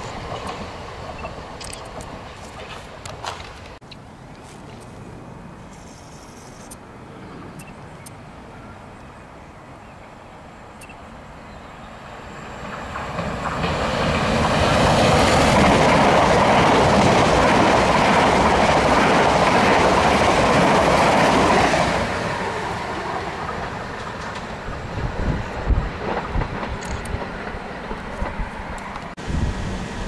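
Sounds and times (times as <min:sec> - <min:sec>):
train wheels clattering on rails: 0:12.5 - 0:22.1, 0:23.3 - 0:29.2.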